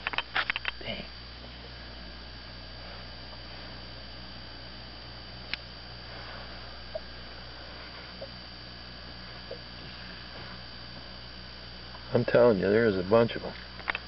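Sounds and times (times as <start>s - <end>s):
sharp click: 0.0s - 0.8s
electrical hum: 0.0s - 14.0s.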